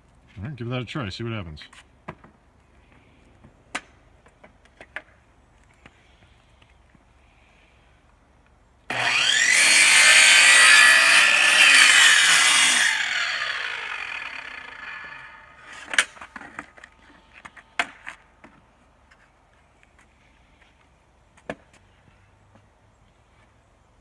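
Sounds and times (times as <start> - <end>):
chop saw cutting board: 8.9 - 16.1.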